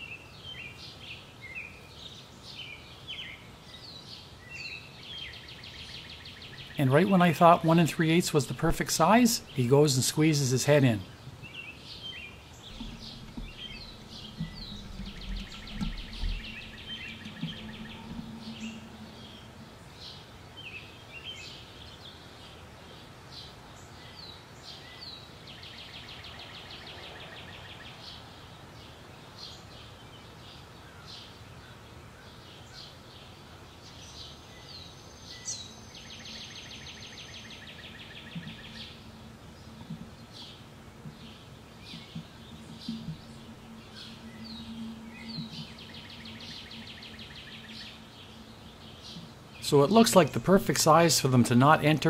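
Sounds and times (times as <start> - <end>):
birds chirping: 0.0 - 52.0
bird trilling: 12.1 - 20.2, 36.4 - 49.7.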